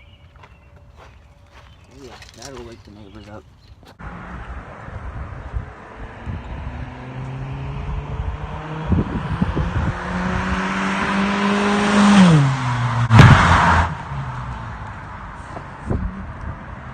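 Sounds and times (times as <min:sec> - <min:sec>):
car open exhaust roaring: 0:04.0 - 0:16.9.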